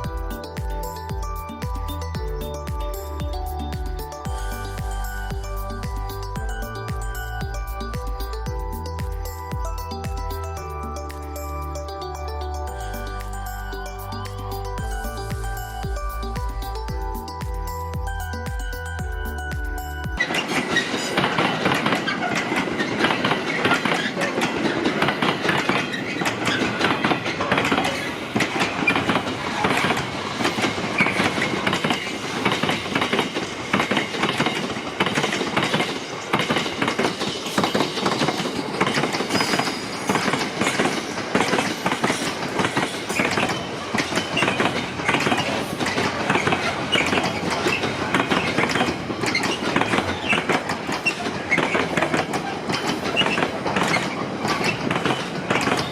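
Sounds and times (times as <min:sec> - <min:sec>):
train wheels clattering: 0:20.2 - 0:55.9.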